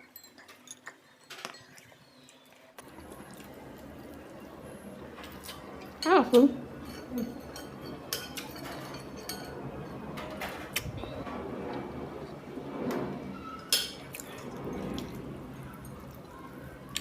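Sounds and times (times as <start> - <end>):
cutlery clinking on dishes: 0.0 - 2.0, 5.2 - 10.8, 13.6 - 17.0.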